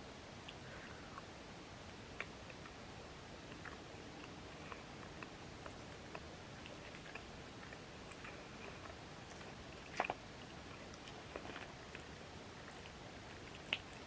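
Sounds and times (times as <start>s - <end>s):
person chewing food: 3.4s - 14.0s.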